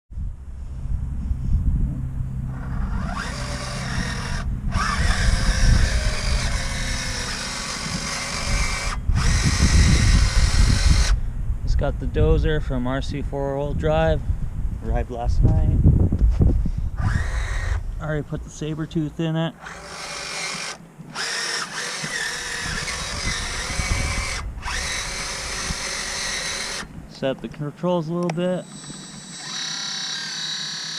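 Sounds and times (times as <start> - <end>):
low rumble: 0.1 - 18.9
electric motors whining: 2.4 - 11.3, 17.0 - 18.0, 19.6 - 27.0, 28.2 - 30.9.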